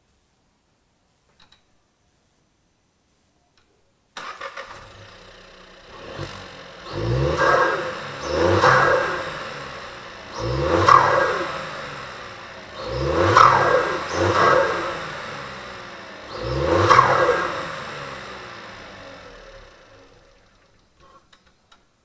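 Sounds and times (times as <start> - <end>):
car engine starting and revving: 4.2 - 21.0.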